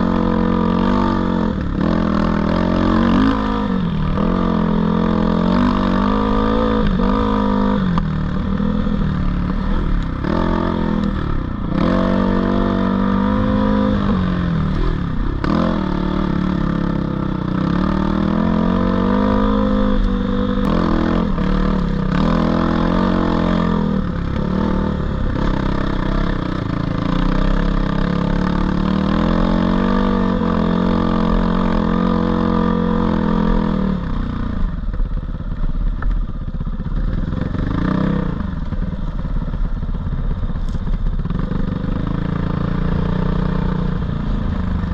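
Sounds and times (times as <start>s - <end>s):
dirt bike engine revving: 0.0s - 34.4s, 37.3s - 38.6s.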